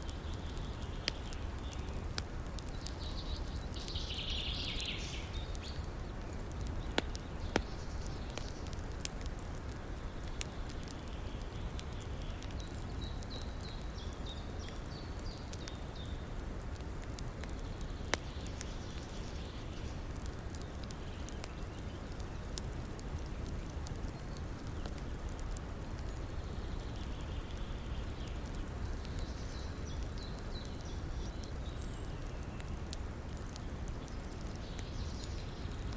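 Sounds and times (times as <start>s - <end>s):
campfire crackling and popping: 0.0s - 35.9s
bird chirping: 2.8s - 5.8s.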